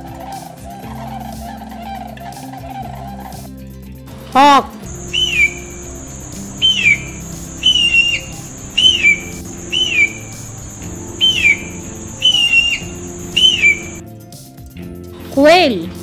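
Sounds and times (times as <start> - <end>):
hawk calling: 4.9 - 14.0.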